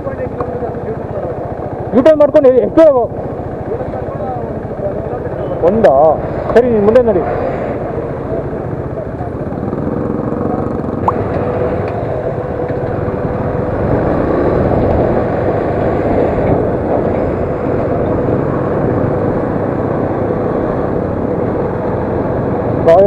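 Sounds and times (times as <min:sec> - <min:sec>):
motorcycle engine running: 0:07.9 - 0:15.7.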